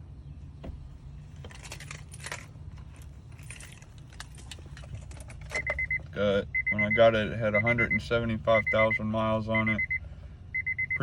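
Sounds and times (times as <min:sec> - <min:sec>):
steady low hum: 0:00.0 - 0:11.0
keys jingling: 0:01.4 - 0:05.8
rapid high beeping: 0:05.7 - 0:11.0.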